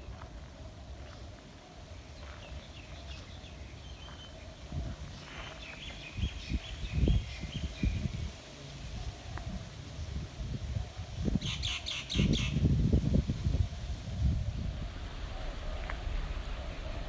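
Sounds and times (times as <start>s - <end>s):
small birds chirping: 0.0s - 12.7s.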